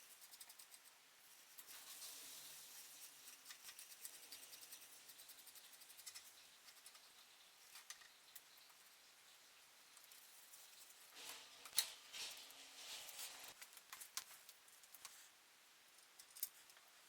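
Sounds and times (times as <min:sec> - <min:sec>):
quick scratching with light clicks: 0:00.0 - 0:08.9.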